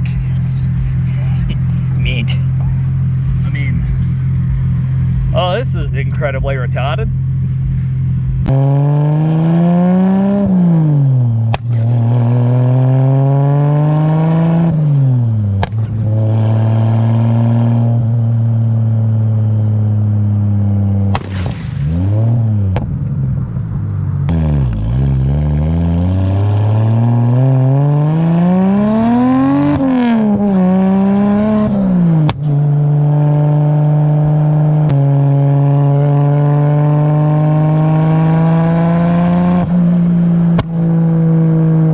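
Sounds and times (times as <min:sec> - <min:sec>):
exhaust cracks: 0:00.0 - 0:08.5
car engine revving: 0:00.0 - 0:23.4, 0:24.3 - 0:41.9.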